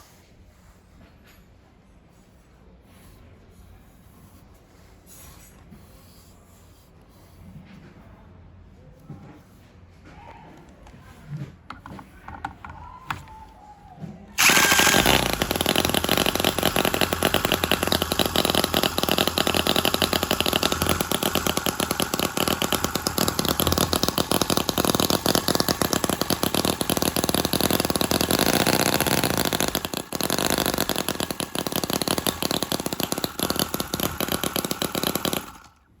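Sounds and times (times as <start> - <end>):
small model engine running: 14.4 - 35.8.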